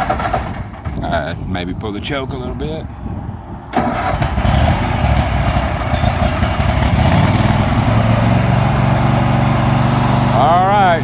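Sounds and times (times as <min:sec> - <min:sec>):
lawn mower engine running: 0:03.8 - 0:11.0.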